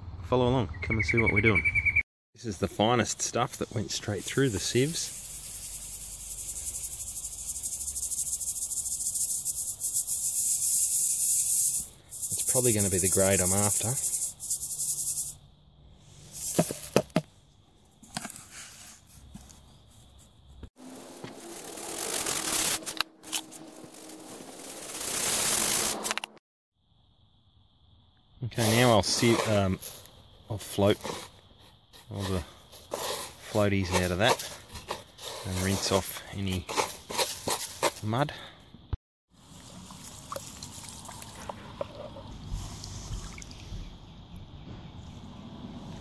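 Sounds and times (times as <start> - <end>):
gravel grit rustling: 2.8 - 26.3, 28.5 - 38.5
water running into gravel: 39.4 - 41.8.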